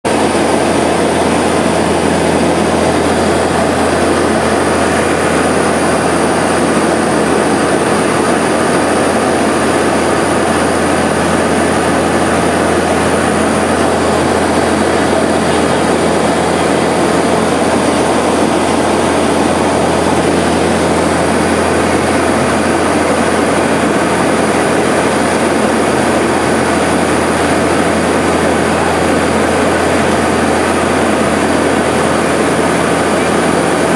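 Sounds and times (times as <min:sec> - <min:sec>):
propeller engines droning in cabin: 0:00.0 - 0:33.9.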